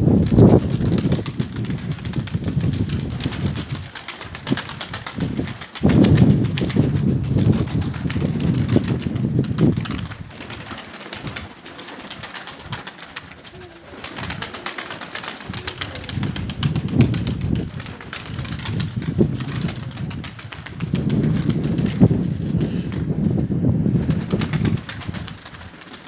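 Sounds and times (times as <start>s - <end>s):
wind buffeting microphone: 0.0s - 25.8s
pigeons cooing: 13.2s - 20.0s.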